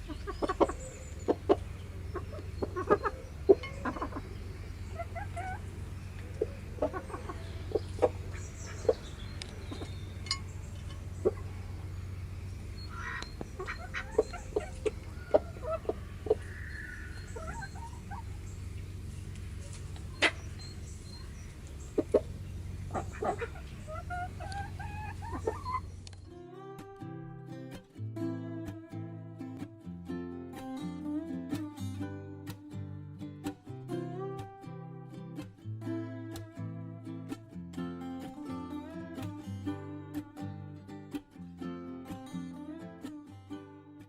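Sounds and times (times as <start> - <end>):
chickens clucking: 0.0 - 26.3
chickens pecking: 0.0 - 26.3
steady low hum: 0.0 - 27.5.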